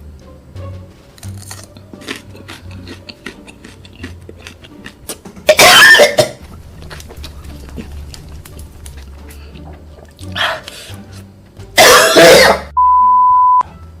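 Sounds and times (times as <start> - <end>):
person coughing: 5.5 - 6.4, 11.8 - 12.7.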